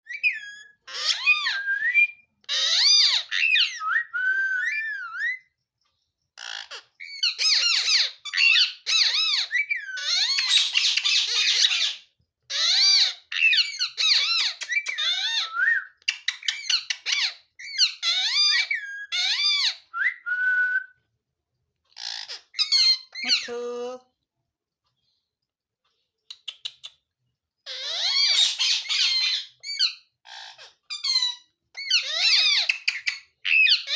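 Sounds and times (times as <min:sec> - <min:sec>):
parrot squawking and whistling: 0:00.1 - 0:05.4, 0:06.4 - 0:20.9, 0:27.7 - 0:33.9
parrot screech: 0:02.5 - 0:03.7, 0:27.7 - 0:33.9.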